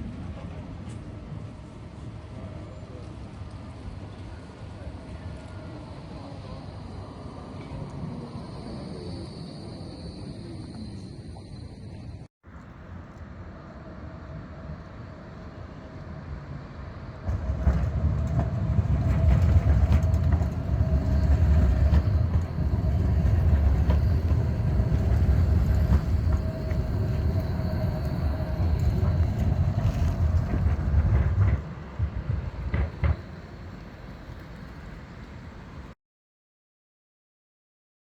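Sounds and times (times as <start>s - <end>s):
tram rumbling on rails: 0.0s - 36.0s
steady whine: 13.1s - 35.9s.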